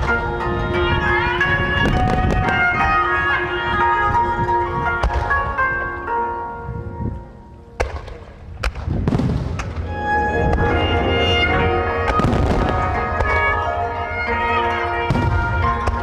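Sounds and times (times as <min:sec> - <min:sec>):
music playing: 0:00.0 - 0:08.6, 0:09.7 - 0:16.0
fireworks crackle: 0:07.8 - 0:09.9
fireworks bangs: 0:07.8 - 0:13.7, 0:15.0 - 0:16.0.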